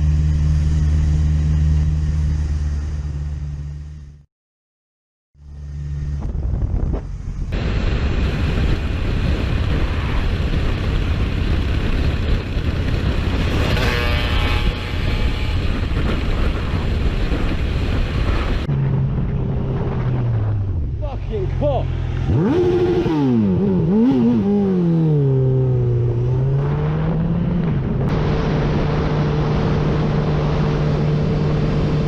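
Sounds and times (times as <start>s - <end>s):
engine and road noise: 0.0s - 4.3s, 5.4s - 32.0s.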